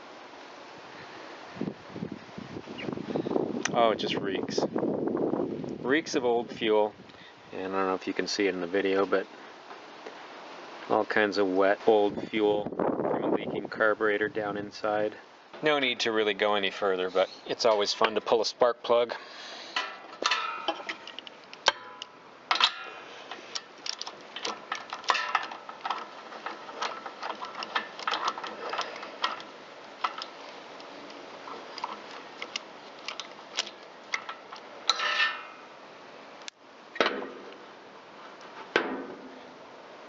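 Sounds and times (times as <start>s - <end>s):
metal tools clinking: 19.8s - 35.6s.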